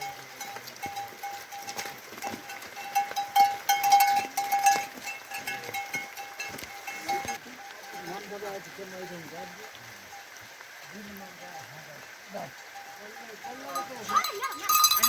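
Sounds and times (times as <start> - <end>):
metal bell clanking: 0.0 - 8.3, 13.5 - 15.0.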